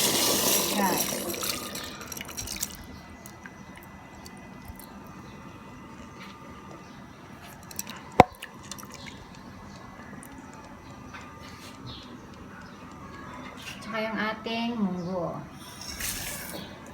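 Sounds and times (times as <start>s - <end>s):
coconut milk bubbling in pot: 0.0s - 5.0s.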